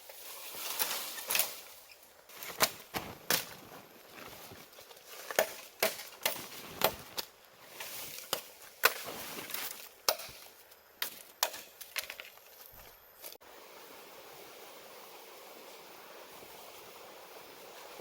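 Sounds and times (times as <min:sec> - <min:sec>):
blade chopping wood: 0:05.2 - 0:07.3.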